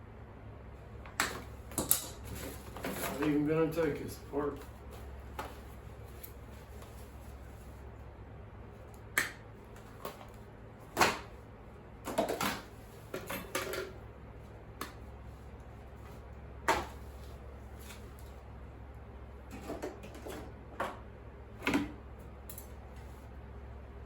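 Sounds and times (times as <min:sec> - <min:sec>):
scrap items clattering: 0:01.8 - 0:04.0.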